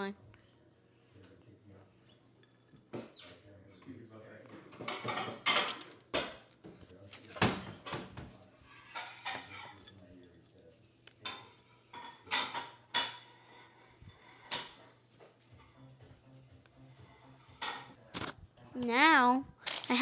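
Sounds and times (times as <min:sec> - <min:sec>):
utensils clinking against dishes: 0:02.0 - 0:16.0, 0:17.2 - 0:18.3.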